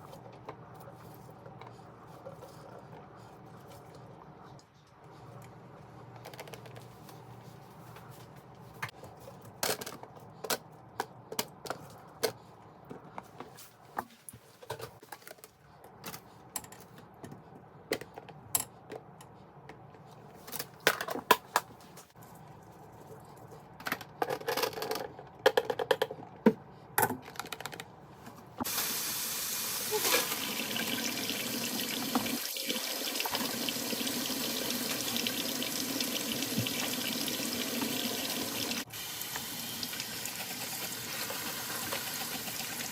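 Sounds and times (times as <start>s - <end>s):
water running into sink: 28.6s - 42.9s.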